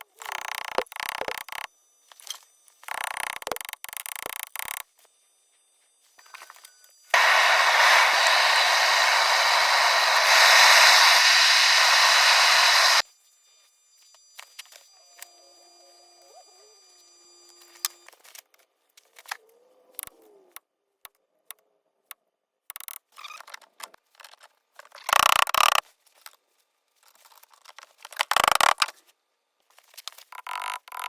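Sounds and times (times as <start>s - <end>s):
loud noisy bursts: 7.2s - 13.0s.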